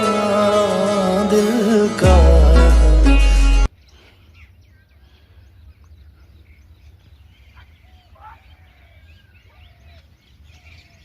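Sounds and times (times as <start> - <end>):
faint birds chirping: 3.7 - 11.0.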